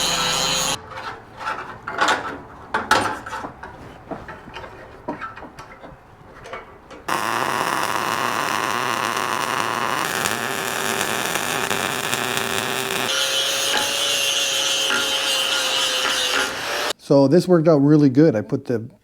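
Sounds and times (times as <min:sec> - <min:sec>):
angle grinder grinding steel: 0:00.0 - 0:00.8, 0:07.1 - 0:16.9.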